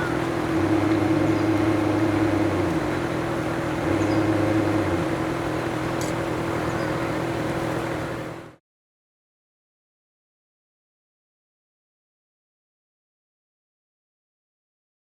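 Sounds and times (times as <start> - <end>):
electric motor whine: 0.0 - 8.2
low hum: 0.0 - 8.6
wind and water rushing: 0.0 - 8.6.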